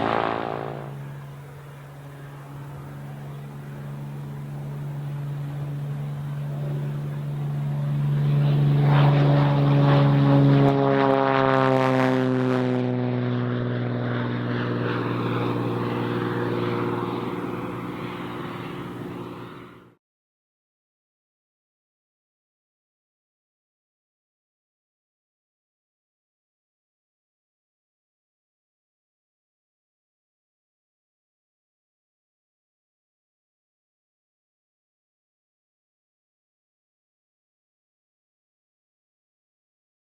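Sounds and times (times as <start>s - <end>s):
propeller plane passing by: 0.0s - 20.0s.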